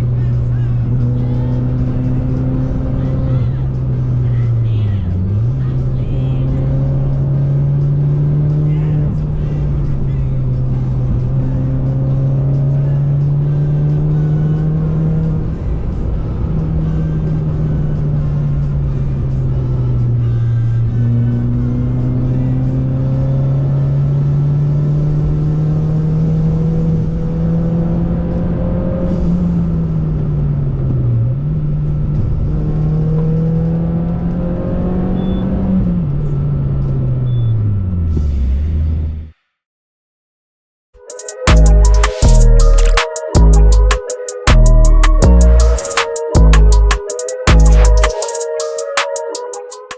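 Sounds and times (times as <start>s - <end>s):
car engine accelerating: 0.0s - 39.2s.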